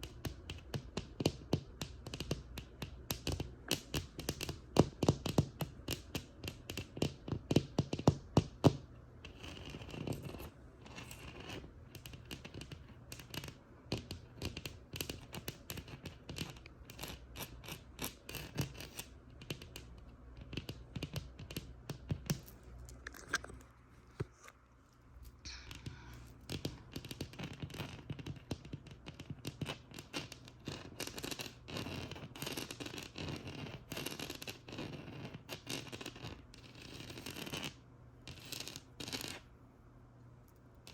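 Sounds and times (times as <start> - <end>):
tapping on a textured wall: 0.0 - 22.5, 26.5 - 31.7
scratching on a rough wall: 0.0 - 24.5, 26.5 - 39.5.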